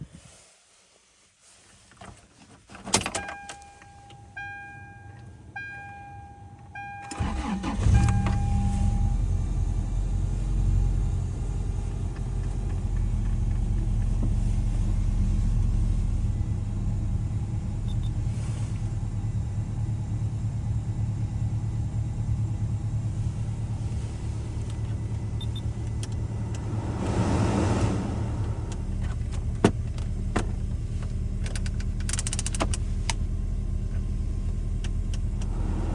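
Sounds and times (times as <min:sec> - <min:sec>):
car engine cranking and idling: 0:02.6 - 0:35.9
car warning chime beeping: 0:03.2 - 0:09.2, 0:25.3 - 0:26.4.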